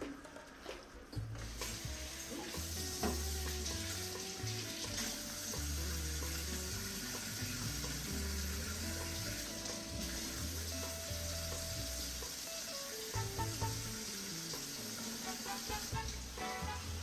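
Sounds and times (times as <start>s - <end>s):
background music with bass line: 1.1s - 17.0s
chicken sizzling in a pan: 1.4s - 17.0s.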